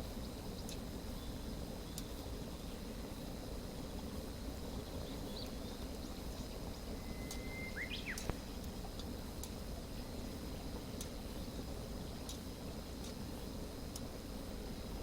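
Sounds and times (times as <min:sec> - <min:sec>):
bird call: 0:07.0 - 0:08.3.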